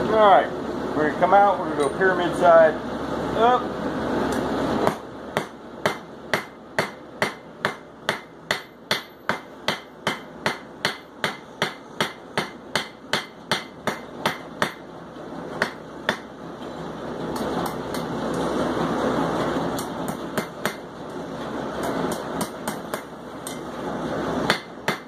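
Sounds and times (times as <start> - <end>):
hammer striking steel on anvil: 4.8 - 14.8, 15.6 - 16.3, 19.8 - 20.8, 21.8 - 23.7, 24.5 - 25.0.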